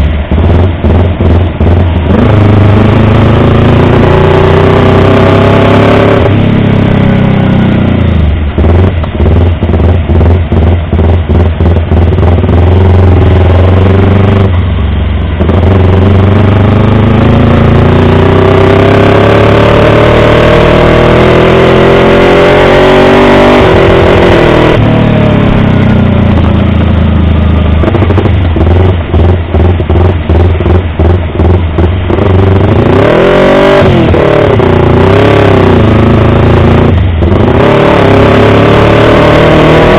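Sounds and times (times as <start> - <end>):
motorcycle engine revving: 0.0 - 39.9
engine stuttering cut-outs: 27.8 - 39.9.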